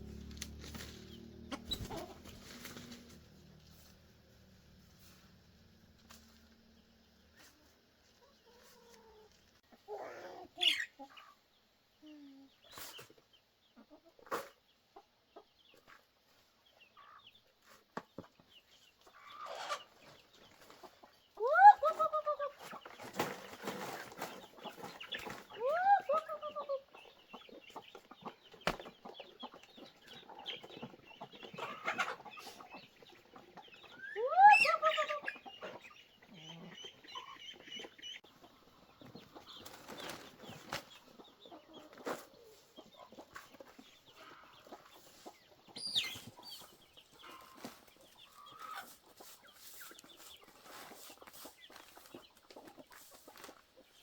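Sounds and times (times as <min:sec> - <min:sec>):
chickens clucking: 0:00.0 - 0:54.0
loud swooping chicken calls: 0:01.0 - 0:02.9.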